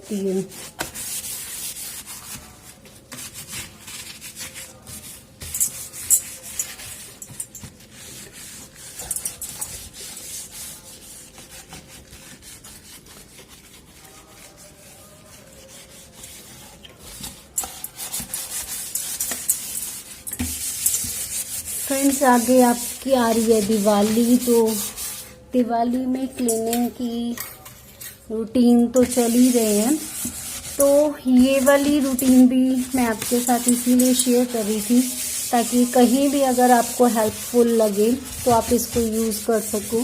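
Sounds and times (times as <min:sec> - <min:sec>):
scratchy scrubbing of rubber seal: 0:29.0 - 0:40.0.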